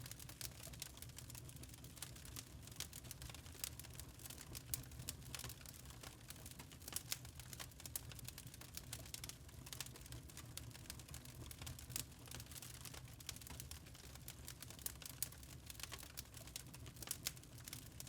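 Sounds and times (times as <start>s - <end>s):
fire crackling and popping: 0.0s - 18.0s.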